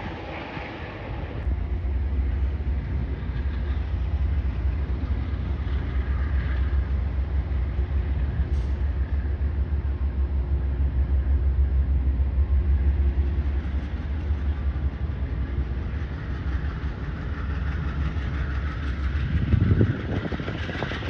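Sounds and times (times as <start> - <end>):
train rumbling past: 0.0 - 21.0.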